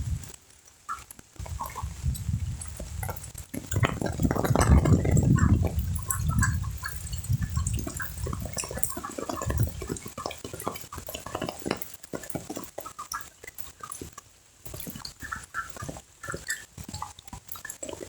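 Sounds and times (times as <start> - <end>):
wind buffeting microphone: 0.0 - 0.3, 1.4 - 10.0
rain pattering on pond water: 0.0 - 18.0.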